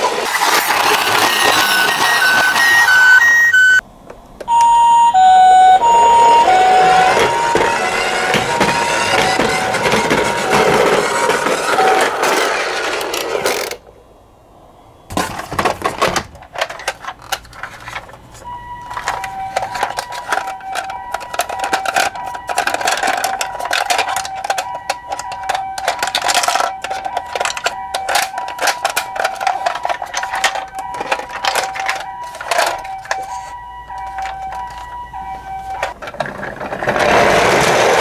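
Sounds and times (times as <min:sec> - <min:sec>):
plastic toy cars rolling down ramp: 0:00.0 - 0:03.2, 0:06.6 - 0:13.8, 0:15.1 - 0:18.2, 0:18.8 - 0:33.4, 0:35.8 - 0:38.0
electronic two-tone toy siren: 0:01.2 - 0:03.8, 0:04.5 - 0:12.1, 0:18.4 - 0:36.0
plastic toy clicks and knocks: 0:15.1 - 0:18.2, 0:18.9 - 0:33.4.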